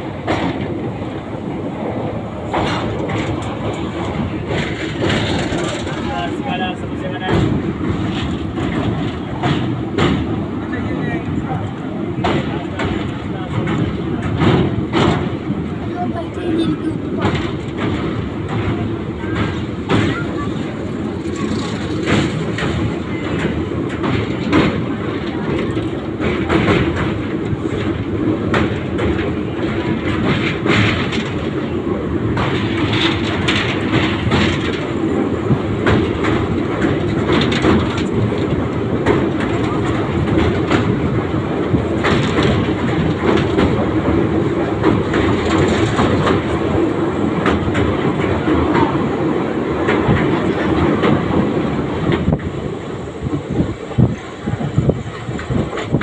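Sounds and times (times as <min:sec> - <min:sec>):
train rumbling over bridge: 0:00.0 - 0:56.0
wheels clacking over joints: 0:02.5 - 0:10.4, 0:16.7 - 0:49.0.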